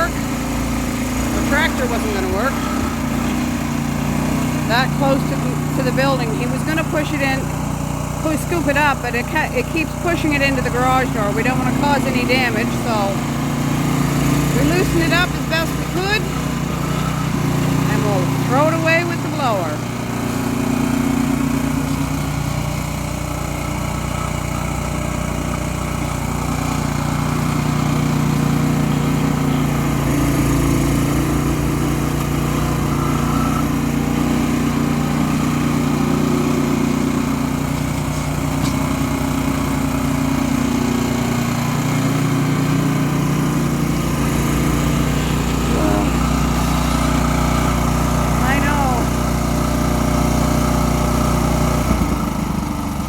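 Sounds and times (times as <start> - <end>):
snow blower engine running: 0.0 - 53.0.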